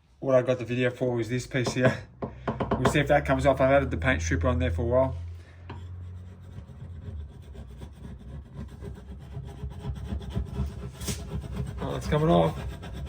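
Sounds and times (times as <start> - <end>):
scraper scraping paint off wood: 5.8 - 13.0.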